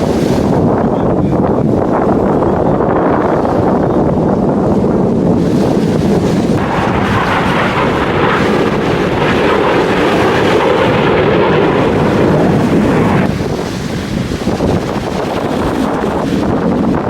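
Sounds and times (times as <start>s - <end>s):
jet engine rushing: 3.4s - 17.0s.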